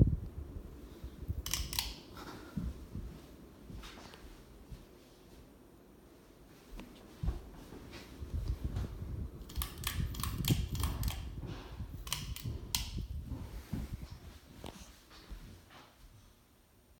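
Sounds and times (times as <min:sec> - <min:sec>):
ceiling fan air rumble: 0:00.0 - 0:16.9
sharp clicks and rattles: 0:01.4 - 0:02.0, 0:09.4 - 0:11.4, 0:12.0 - 0:13.1.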